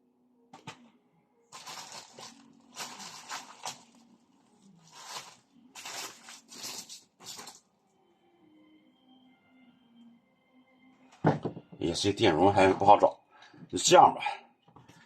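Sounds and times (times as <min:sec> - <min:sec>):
rummaging through spare parts: 0:01.6 - 0:03.9, 0:04.9 - 0:07.6.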